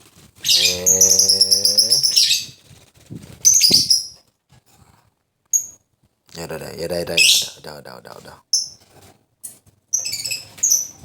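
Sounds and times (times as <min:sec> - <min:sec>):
lovebird twittering: 0:00.4 - 0:02.6, 0:03.4 - 0:04.2, 0:09.9 - 0:11.0.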